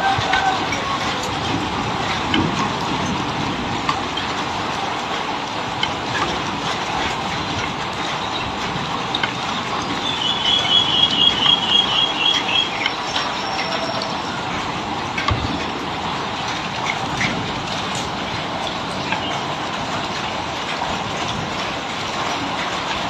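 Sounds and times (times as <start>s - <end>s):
bird chattering: 10.0s - 13.9s.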